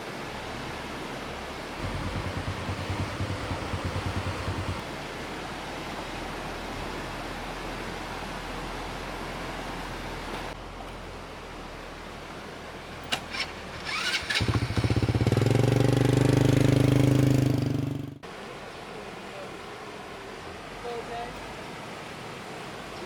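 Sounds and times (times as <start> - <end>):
small engine running: 1.8 - 4.8, 13.1 - 18.2.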